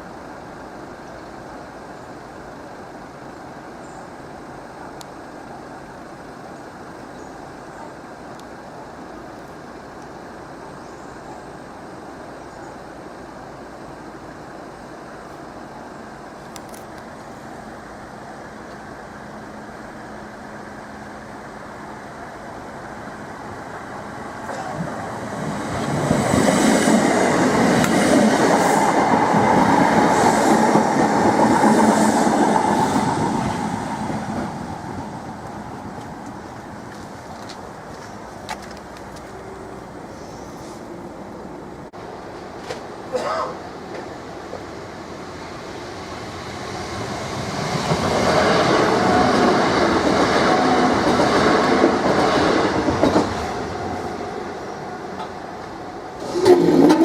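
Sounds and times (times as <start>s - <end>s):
electric train running gear hum: 0.0s - 57.0s
wheels clattering over rail joints: 56.2s - 57.0s.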